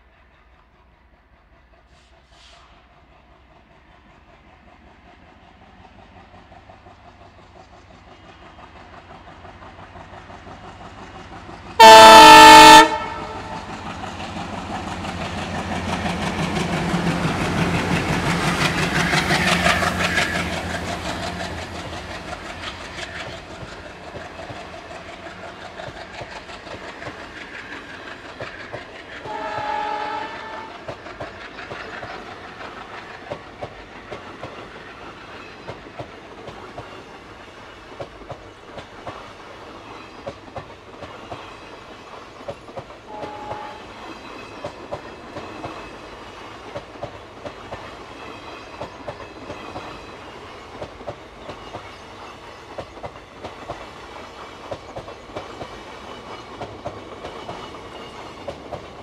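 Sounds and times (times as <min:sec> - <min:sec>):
train passing at speed: 0:00.0 - 0:59.0
locomotive horn blast: 0:11.8 - 0:13.7, 0:29.3 - 0:30.8, 0:43.1 - 0:43.9.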